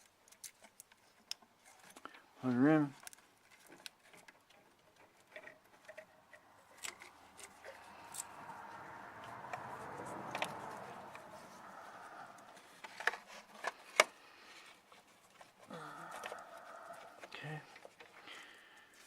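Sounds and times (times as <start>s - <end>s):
soft rushing noise: 7.1s - 12.8s.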